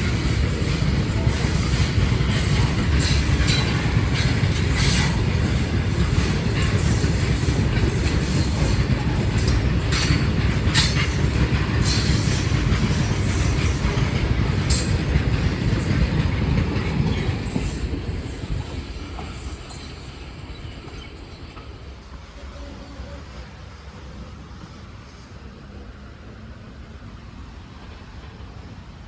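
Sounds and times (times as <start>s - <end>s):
train wheels rumbling on track: 0.0s - 29.0s.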